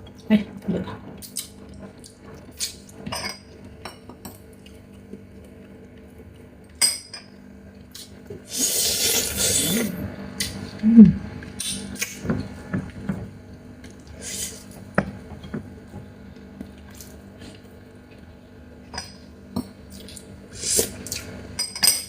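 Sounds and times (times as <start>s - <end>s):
person humming: 8.5s - 10.0s, 10.8s - 11.3s.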